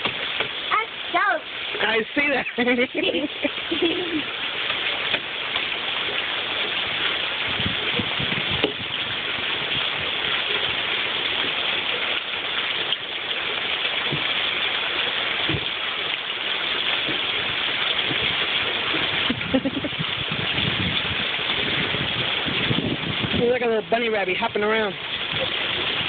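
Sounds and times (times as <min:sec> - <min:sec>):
steady rain falling: 0:00.0 - 0:26.0
low thumps: 0:07.5 - 0:09.9.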